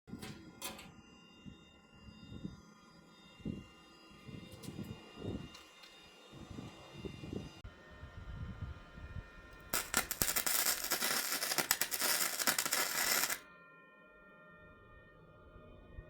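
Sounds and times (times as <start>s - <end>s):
welding arc crackling: 9.8s - 13.4s.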